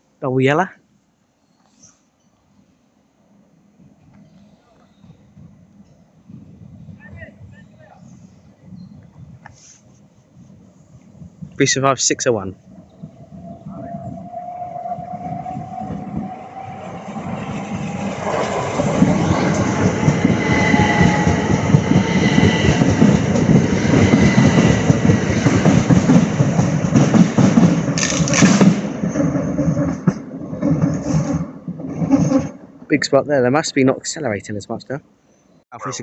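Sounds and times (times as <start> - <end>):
electric train passing: 12.4 - 32.9
wheels clattering on rails: 17.4 - 32.9.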